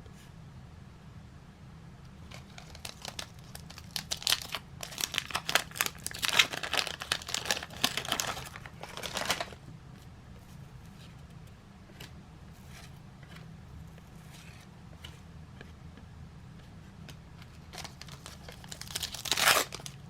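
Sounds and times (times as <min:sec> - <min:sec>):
wrapper tearing and crinkling: 0:02.3 - 0:09.6, 0:17.8 - 0:20.0.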